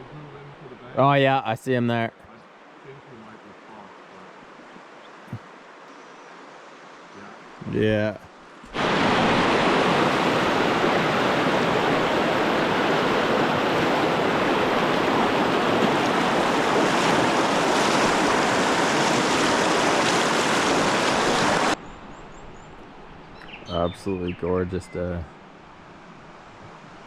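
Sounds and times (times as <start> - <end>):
fast-flowing river rushing: 8.7 - 21.8.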